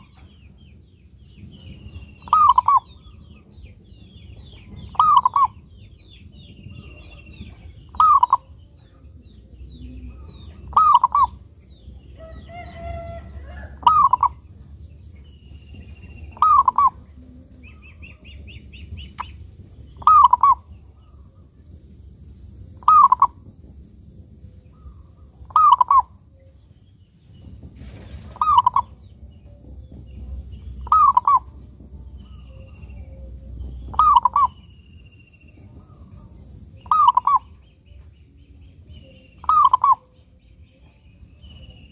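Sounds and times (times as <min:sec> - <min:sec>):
small birds chirping: 0:00.0 - 0:41.9
dove cooing: 0:02.2 - 0:03.0, 0:04.7 - 0:05.7, 0:06.8 - 0:11.5, 0:12.2 - 0:14.8, 0:15.8 - 0:19.4, 0:20.0 - 0:21.3, 0:22.8 - 0:23.4, 0:24.7 - 0:26.3, 0:28.4 - 0:34.7, 0:35.7 - 0:37.6, 0:39.0 - 0:40.2.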